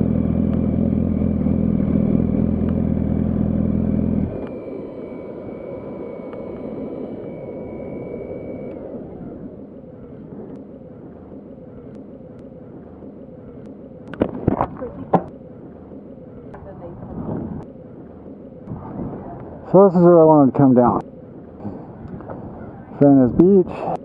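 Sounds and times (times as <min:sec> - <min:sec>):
motorcycle engine idling: 0:00.0 - 0:16.7
low street noise: 0:00.0 - 0:24.0
faint high whine: 0:01.3 - 0:24.0.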